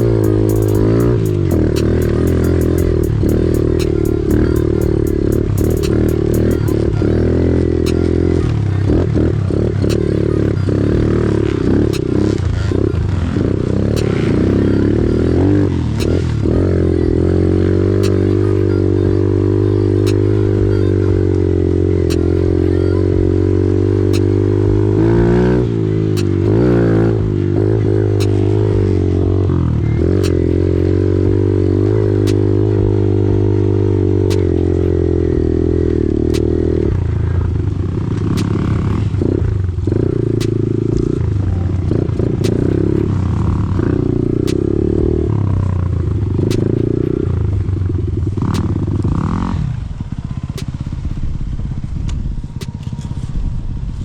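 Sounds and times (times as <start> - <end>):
faint sharp ticking: 0.0 - 7.0
off-road vehicle engine running: 0.0 - 54.0.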